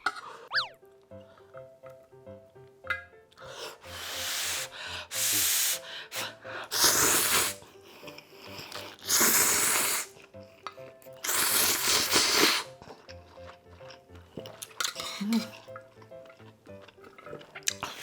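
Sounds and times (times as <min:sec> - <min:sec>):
light background music: 0:00.5 - 0:18.0
person slurping noodles: 0:03.6 - 0:07.6, 0:08.5 - 0:10.2, 0:11.2 - 0:12.8.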